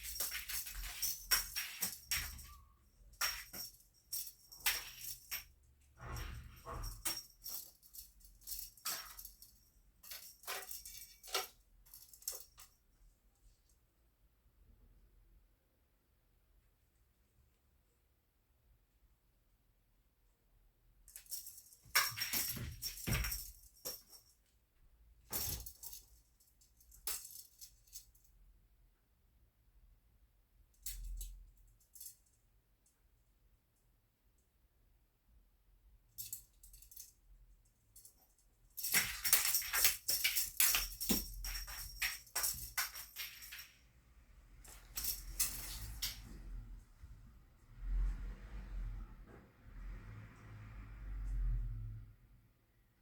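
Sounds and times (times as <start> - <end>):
cat toy jingling and rustling: 0.0 - 12.8, 21.1 - 24.4, 25.3 - 28.1, 38.0 - 43.8, 44.6 - 46.5.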